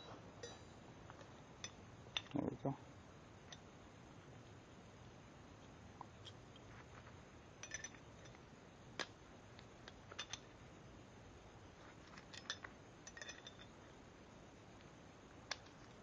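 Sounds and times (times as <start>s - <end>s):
metallic clicks of tools: 12.2s - 13.7s.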